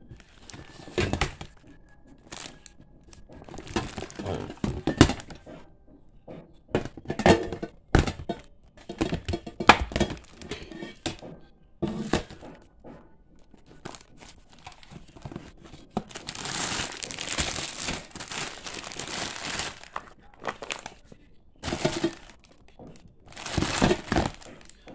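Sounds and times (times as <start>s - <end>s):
packaging crinkling: 0.0s - 1.6s, 2.2s - 5.4s, 9.9s - 10.6s, 13.5s - 21.0s, 21.6s - 22.6s, 23.2s - 24.9s.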